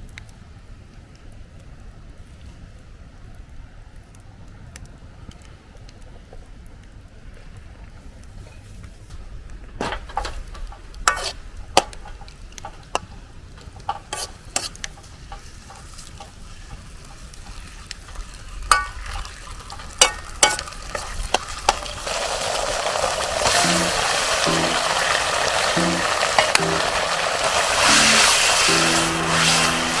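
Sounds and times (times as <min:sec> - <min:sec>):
loud sizzle: 0:08.0 - 0:30.0
metal utensil scraping wok: 0:09.8 - 0:30.0.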